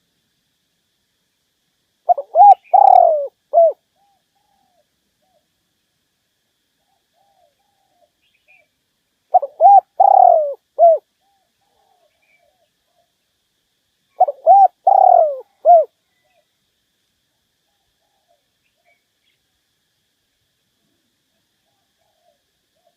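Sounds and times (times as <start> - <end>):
dove cooing: 2.1 - 5.5, 6.8 - 8.6, 9.3 - 13.1, 14.2 - 16.4, 21.6 - 22.9.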